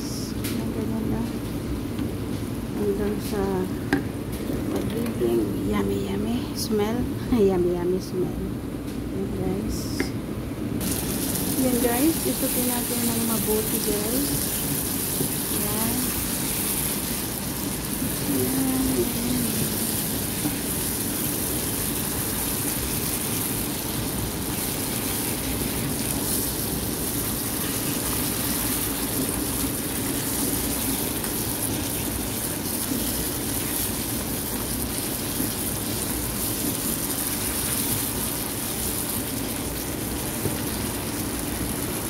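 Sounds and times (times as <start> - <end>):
vegetables sizzling in a frying pan: 10.8 - 42.0.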